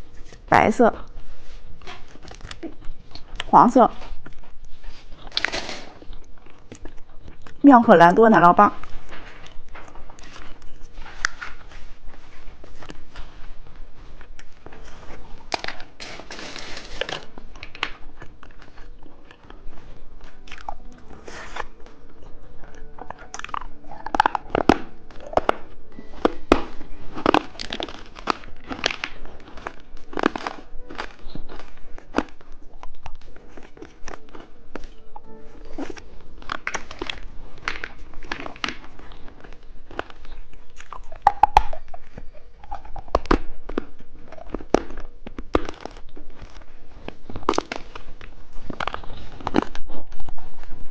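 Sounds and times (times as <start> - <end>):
crunching and chewing candy: 0.0 - 50.9
background music: 14.8 - 40.1.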